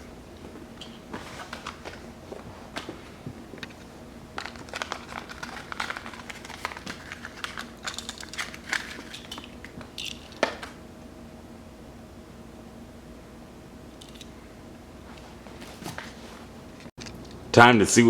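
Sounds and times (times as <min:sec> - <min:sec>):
blister packaging crinkling: 0:04.3 - 0:10.8.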